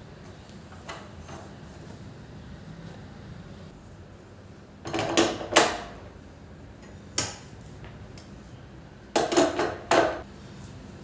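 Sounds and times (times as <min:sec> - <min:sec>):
kitchen clatter of knocks: 0:04.9 - 0:06.0, 0:09.2 - 0:10.2.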